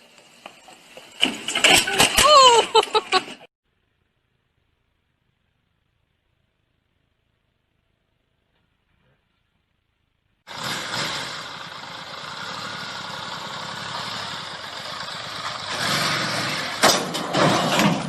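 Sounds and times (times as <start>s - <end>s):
wind and road noise: 0.0s - 3.5s, 10.5s - 18.0s
vehicle engine running: 10.5s - 18.0s.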